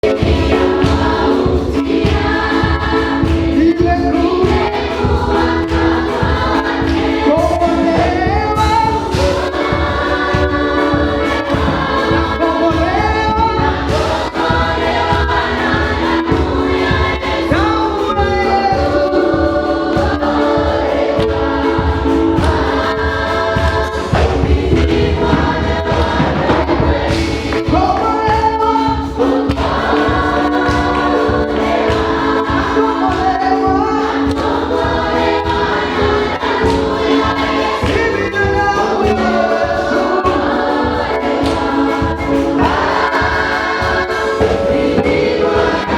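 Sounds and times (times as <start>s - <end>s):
choir singing gospel: 0.0s - 45.9s
instrumental backing with beat: 0.0s - 45.9s.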